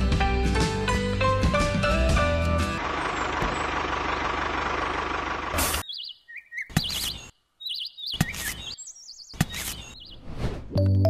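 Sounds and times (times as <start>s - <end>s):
birds chirping and tweeting: 2.8s - 10.6s.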